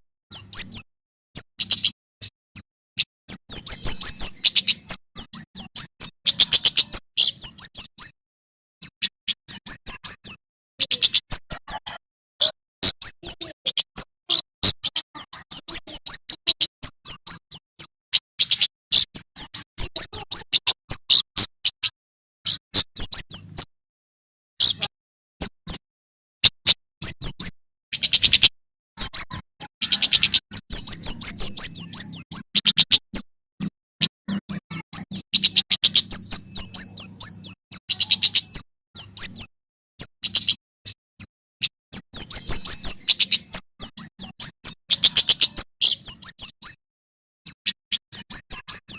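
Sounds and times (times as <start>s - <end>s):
songbird chirping: 0.3s - 8.2s, 8.8s - 21.9s, 22.5s - 23.7s, 24.6s - 25.8s, 26.6s - 46.8s.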